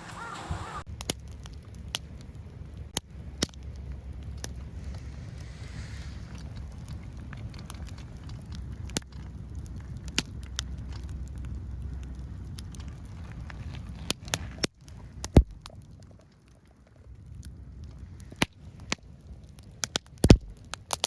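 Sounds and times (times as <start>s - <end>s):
low steady rumble: 0.0s - 20.8s
firewood crackling: 0.0s - 21.0s
sharp pops: 19.8s - 21.0s.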